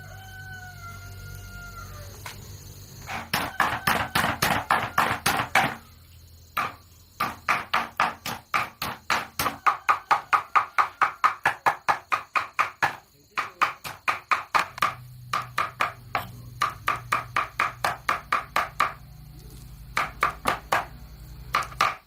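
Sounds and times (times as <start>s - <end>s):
knife chopping on wooden board: 6.6s - 19.0s, 19.9s - 20.9s.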